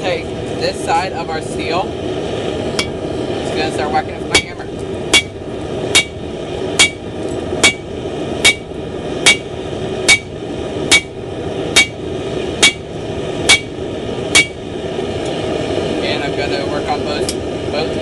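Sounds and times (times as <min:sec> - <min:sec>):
hammer striking steel on anvil: 0:04.3 - 0:06.2, 0:06.8 - 0:09.5, 0:10.1 - 0:12.0, 0:12.6 - 0:12.9, 0:13.5 - 0:14.6.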